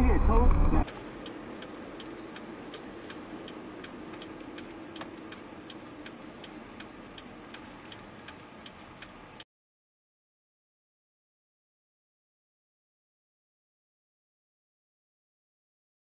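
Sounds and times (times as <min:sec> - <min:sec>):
low hum: 0:00.0 - 0:06.8
faint regular ticking: 0:00.1 - 0:09.4.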